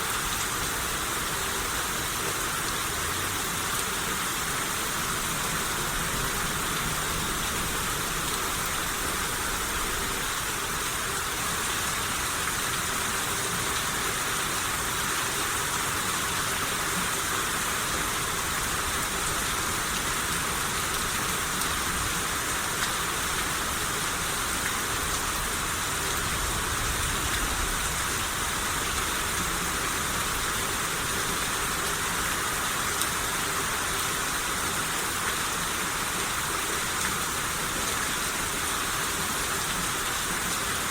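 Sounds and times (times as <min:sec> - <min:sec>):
rain hissing on surfaces: 0:00.0 - 0:40.9.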